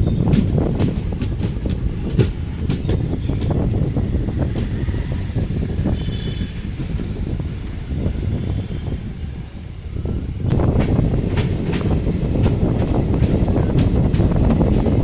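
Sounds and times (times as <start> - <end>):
wheels clacking over rail joints: 0.0 - 6.0
train wheels rumbling on track: 0.0 - 15.0
high-pitched wheel squeals: 4.7 - 10.5.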